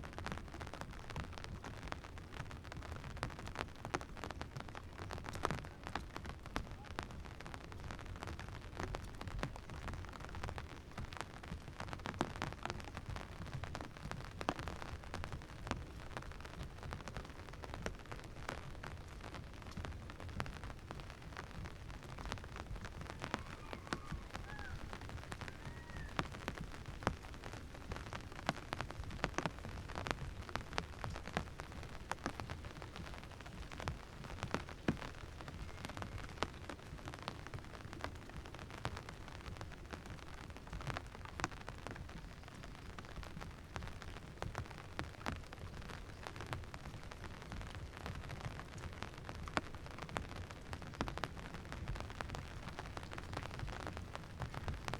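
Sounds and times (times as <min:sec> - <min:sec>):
raindrops hitting close: 0:00.0 - 0:54.9.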